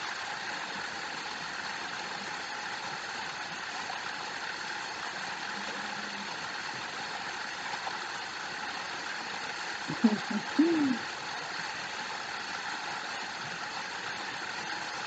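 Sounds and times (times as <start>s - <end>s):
waterfall rushing and splashing: 6.2s - 15.0s
low hooting call: 9.9s - 11.0s.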